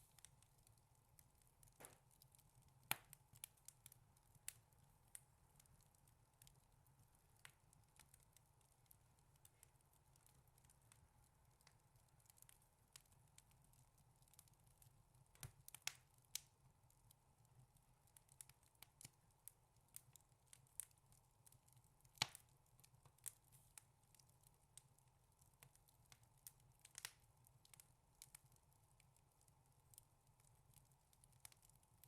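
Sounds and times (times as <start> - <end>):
wood fire crackling: 0.0 - 32.0.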